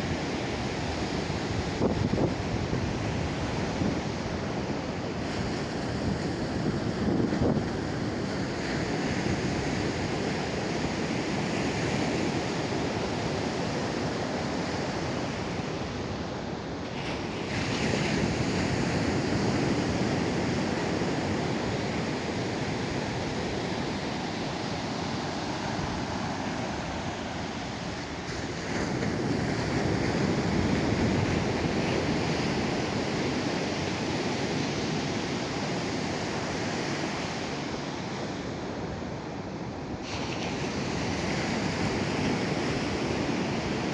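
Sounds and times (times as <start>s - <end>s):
wind on microphone: 0.0s - 16.3s, 17.0s - 39.3s
surf washing on beach: 0.0s - 43.9s.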